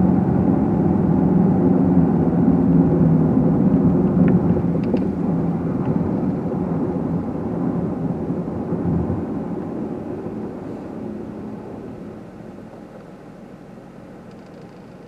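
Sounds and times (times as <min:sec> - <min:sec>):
car engine and tyre hum: 0:00.0 - 0:15.0
faint ticks: 0:14.2 - 0:15.0.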